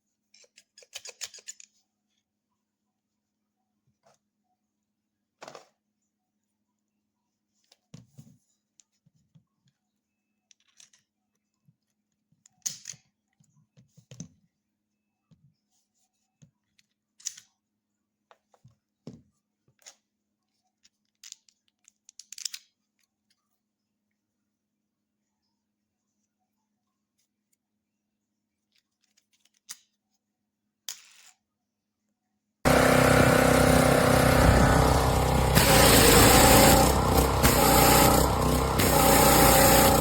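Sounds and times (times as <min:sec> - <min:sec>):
small clicks and rustles: 0:10.5 - 0:11.2, 0:19.8 - 0:23.6, 0:28.6 - 0:30.2.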